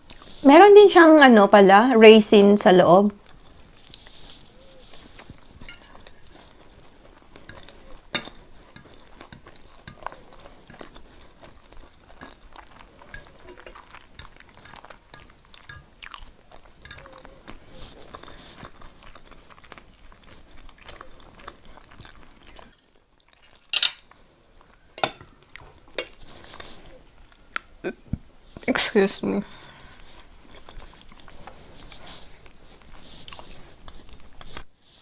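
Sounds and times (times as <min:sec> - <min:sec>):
person chewing and eating: 0:00.0 - 0:00.4, 0:03.2 - 0:28.0, 0:29.7 - 0:35.0
cutlery clinking on plate: 0:05.6 - 0:06.3, 0:07.5 - 0:10.1, 0:13.2 - 0:16.0, 0:16.8 - 0:17.2, 0:23.7 - 0:24.0, 0:25.0 - 0:25.4.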